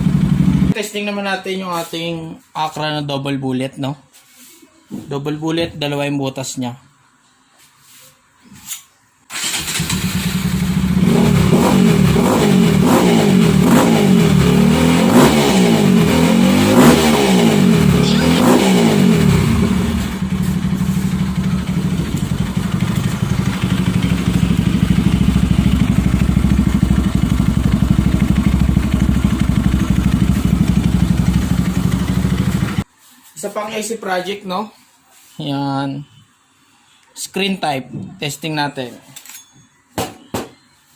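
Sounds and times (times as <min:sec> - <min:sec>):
motorcycle engine revving and idling: 0:00.0 - 0:00.8, 0:09.7 - 0:32.8.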